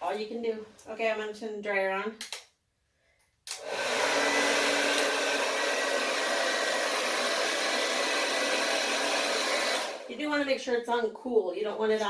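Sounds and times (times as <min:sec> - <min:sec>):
blow dryer running: 0:03.5 - 0:10.2.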